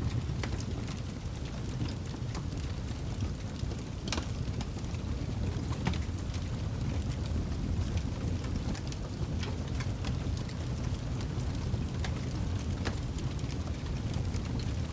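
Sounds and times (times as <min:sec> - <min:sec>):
low rumble of flame: 0:00.0 - 0:14.9
wood crackling and popping: 0:07.8 - 0:14.7.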